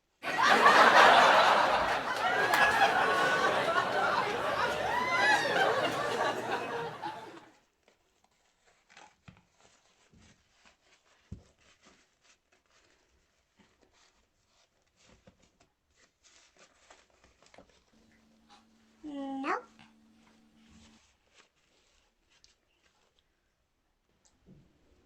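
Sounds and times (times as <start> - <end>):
giggle with gliding pitch: 0.3 - 7.4.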